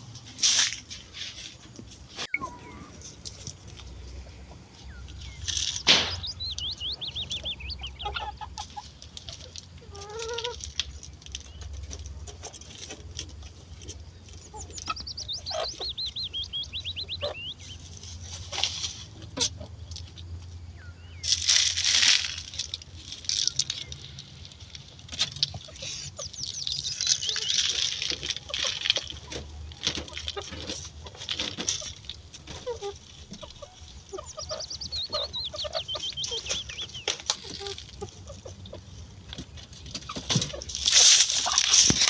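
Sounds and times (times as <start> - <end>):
chickens clucking: 0.0 - 42.0
wings fluttering: 21.2 - 42.0.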